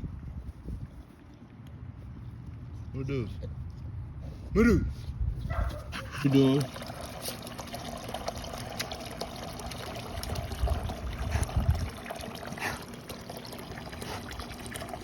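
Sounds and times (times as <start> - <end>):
water trickling: 6.3 - 15.0.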